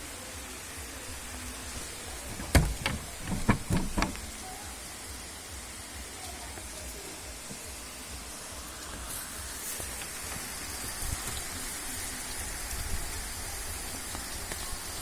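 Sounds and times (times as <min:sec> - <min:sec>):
sharp knocks: 0:02.4 - 0:04.3.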